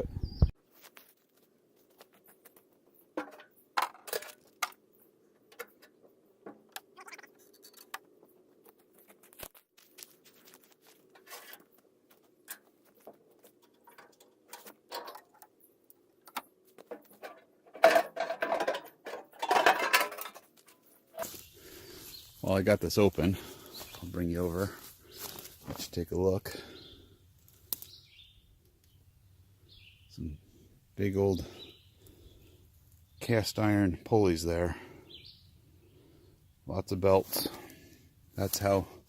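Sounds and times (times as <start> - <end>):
rattling metal clatter: 17.0 - 20.8.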